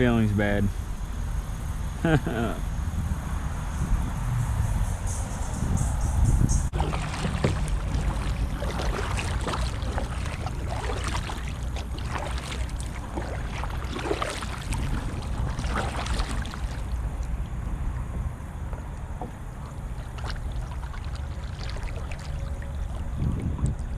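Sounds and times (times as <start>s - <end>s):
wind rumble on microphone: 0.0s - 23.9s
creek water splashing: 6.7s - 23.9s.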